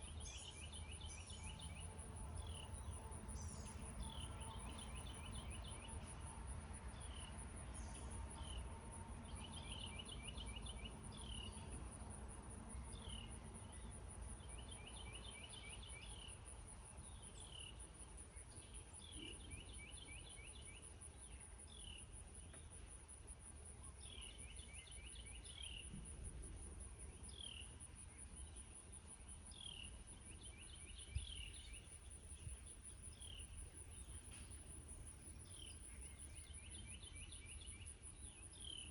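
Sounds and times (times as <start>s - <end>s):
crickets trilling: 0.0s - 8.6s, 24.0s - 38.9s.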